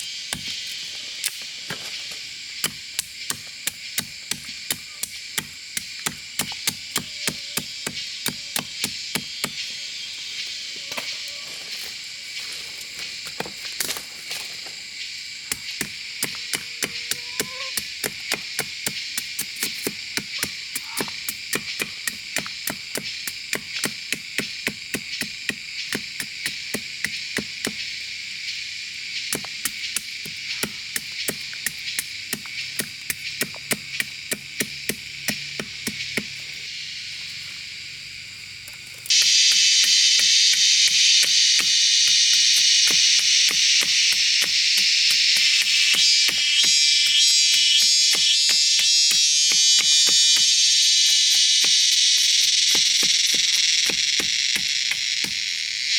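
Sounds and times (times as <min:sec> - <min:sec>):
insects buzzing: 0:00.0 - 0:55.9
chopping strikes on wood: 0:00.3 - 0:00.8, 0:02.6 - 0:09.7, 0:15.5 - 0:27.9, 0:29.3 - 0:36.4, 0:39.1 - 0:50.6, 0:52.7 - 0:55.4.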